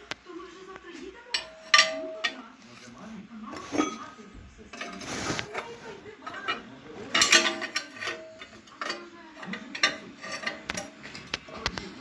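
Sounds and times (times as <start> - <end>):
metal parts clinking: 1.3 - 2.4, 4.7 - 11.4.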